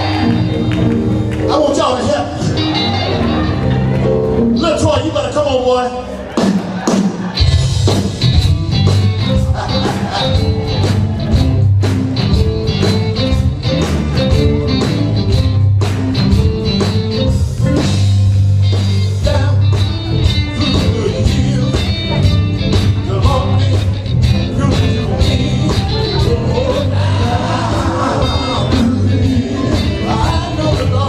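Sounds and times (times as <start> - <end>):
electric guitar: 0.0 - 4.6, 7.3 - 31.0
bass line: 0.0 - 6.4, 7.4 - 31.0
live gospel band: 0.0 - 31.0
drum beat: 6.3 - 31.0.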